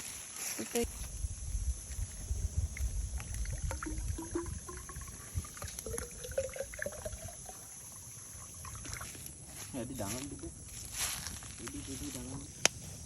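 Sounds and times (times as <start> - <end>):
water trickling into bamboo tube: 2.0 - 9.4
pitched gurgles: 2.8 - 9.2.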